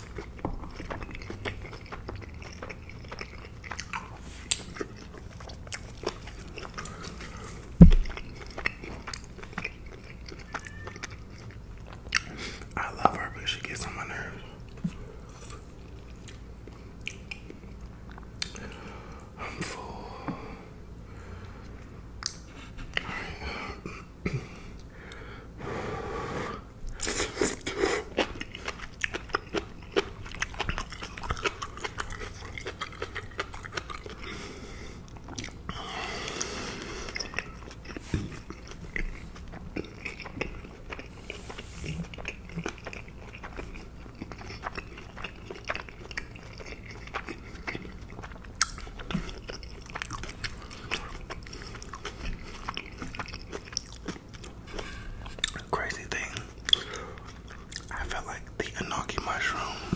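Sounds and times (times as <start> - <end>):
person chewing food: 0.0 - 25.6, 26.5 - 59.9.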